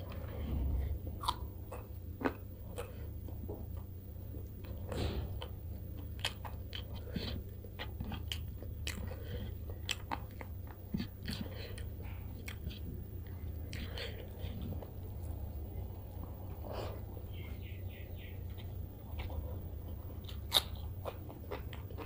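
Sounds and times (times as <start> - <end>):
close chewing with wet mouth clicks: 5.4 - 17.6, 18.2 - 22.0.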